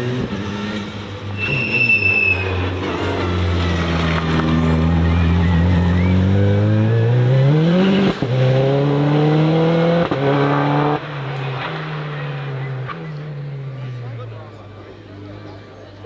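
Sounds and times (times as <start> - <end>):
race car accelerating hard: 0.0 - 15.7.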